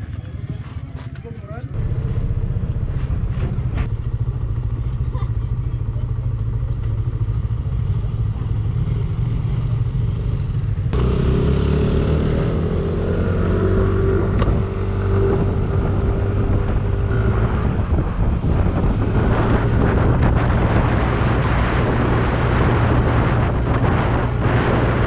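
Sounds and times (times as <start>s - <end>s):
scooter engine running: 10.5s - 12.8s.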